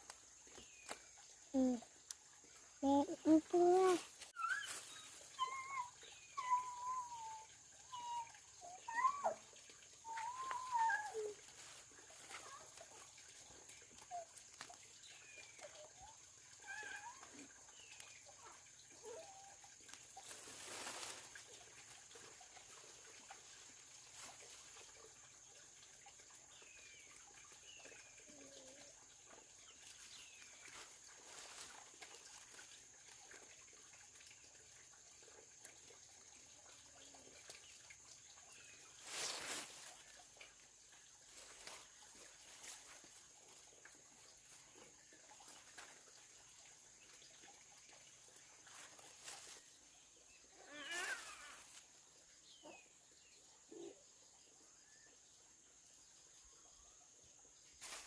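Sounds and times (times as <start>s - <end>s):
faint bird chirps: 2.8s - 9.4s, 10.0s - 11.7s.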